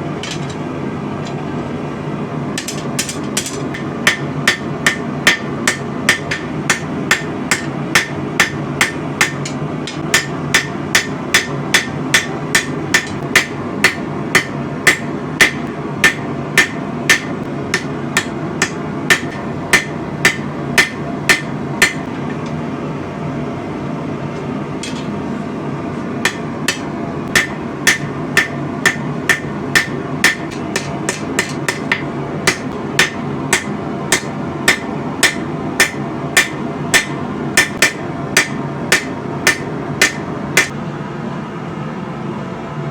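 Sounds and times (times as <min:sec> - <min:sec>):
hammer ringing on anvil: 0:02.6 - 0:22.1, 0:26.3 - 0:40.7.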